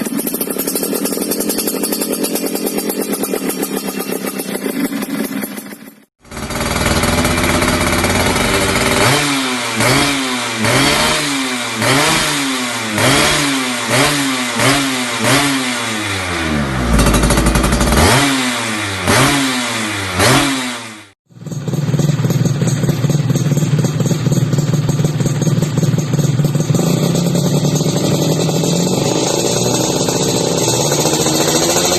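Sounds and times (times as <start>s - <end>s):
engine idling: 0.0s - 9.2s, 16.7s - 18.2s, 21.3s - 31.9s
two-stroke engine revving: 0.0s - 31.9s.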